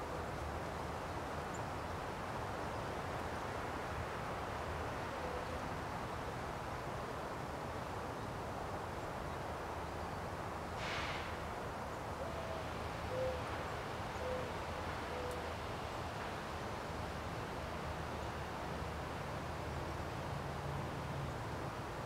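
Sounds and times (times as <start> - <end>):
outdoor background noise: 0.0 - 22.0
brief rushing noise: 10.8 - 11.4
distant bird hooting: 12.2 - 13.5, 14.2 - 15.5.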